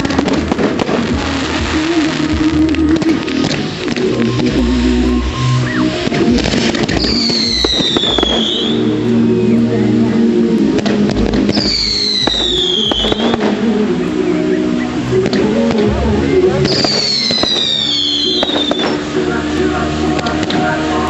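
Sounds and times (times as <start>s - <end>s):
fireworks bangs and crackles: 0.0s - 9.2s, 10.4s - 21.0s
music: 0.0s - 21.0s
fireworks whistles falling in pitch: 3.0s - 9.0s, 11.2s - 13.6s, 16.6s - 19.1s.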